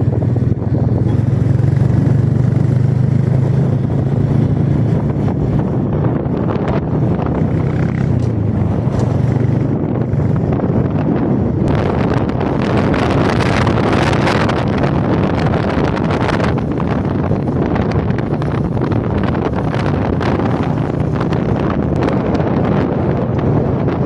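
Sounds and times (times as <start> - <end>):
motorcycle engine running: 0.0 - 24.0
wind noise rush: 0.0 - 24.0.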